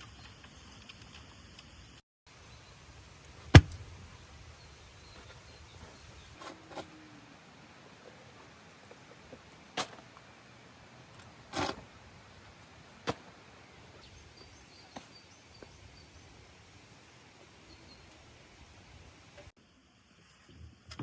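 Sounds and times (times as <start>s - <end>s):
sharp knocks: 3.5s - 3.9s.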